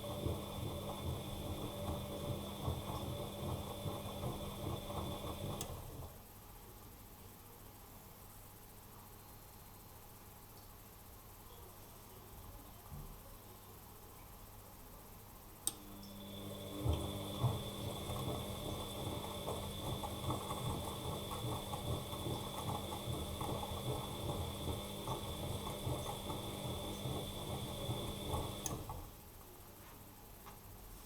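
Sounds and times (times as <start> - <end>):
washing machine motor whine: 0.0 - 6.2, 15.7 - 29.2.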